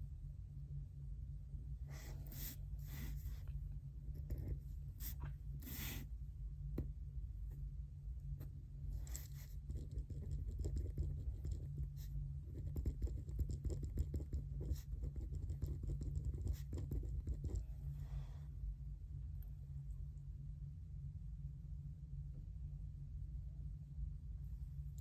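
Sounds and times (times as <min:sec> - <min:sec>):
steady low hum: 0:00.0 - 0:25.0
pen scratching on paper: 0:04.2 - 0:06.0, 0:09.0 - 0:17.6.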